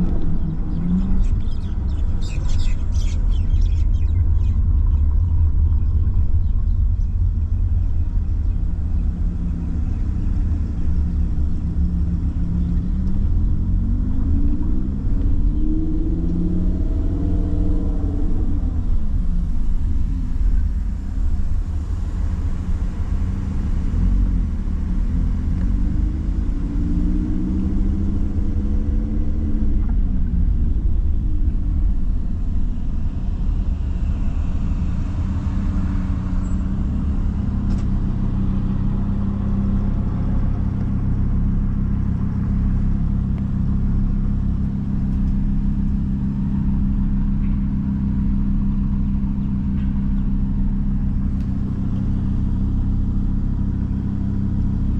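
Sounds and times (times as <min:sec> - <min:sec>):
sports car engine running: 0:00.0 - 0:54.9.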